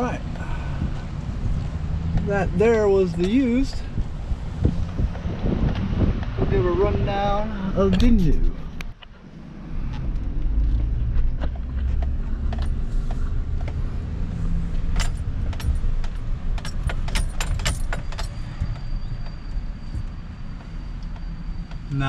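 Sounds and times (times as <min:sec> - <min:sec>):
vehicle engine and road rumble: 0:00.0 - 0:22.0
keys jangling: 0:14.9 - 0:19.0.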